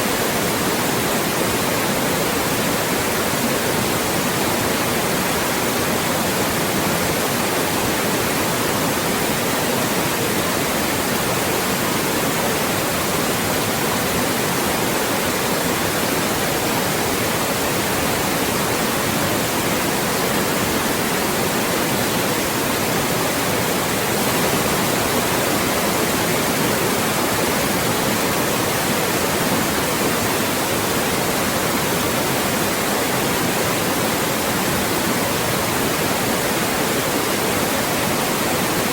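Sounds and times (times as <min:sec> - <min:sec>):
white noise hiss: 0:00.0 - 0:38.9.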